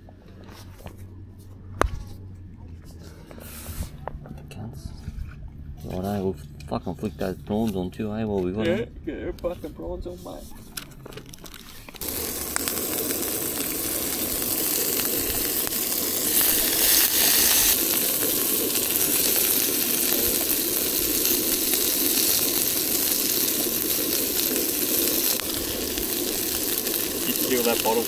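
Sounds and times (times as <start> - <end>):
prawns sizzling in oil: 11.3 - 28.0.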